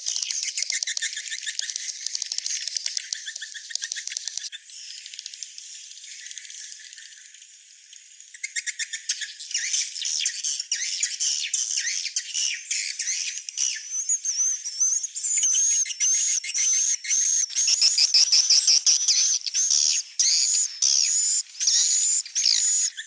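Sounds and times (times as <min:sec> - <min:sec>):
swiftlets twittering and chirping: 0:15.3 - 0:23.0.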